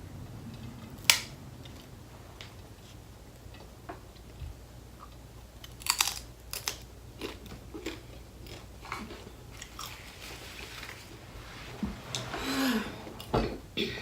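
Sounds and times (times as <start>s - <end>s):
chewing crunchy food: 5.0s - 11.0s.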